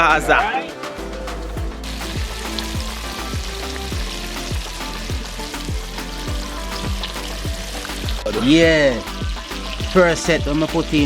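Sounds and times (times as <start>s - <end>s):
background music with kick drum: 0.0s - 11.0s.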